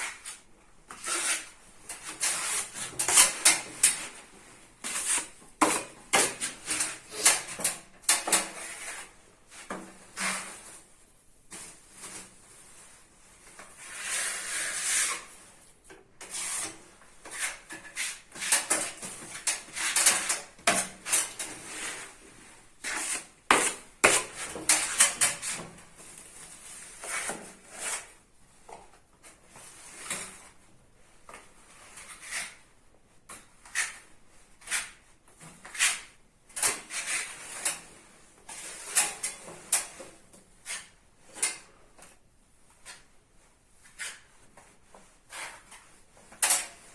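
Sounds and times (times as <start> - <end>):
putty knives scraping filler on wall: 0.0 - 10.9, 13.5 - 15.6, 16.2 - 25.8, 26.6 - 28.2, 31.7 - 32.6, 33.3 - 41.8, 43.8 - 46.9.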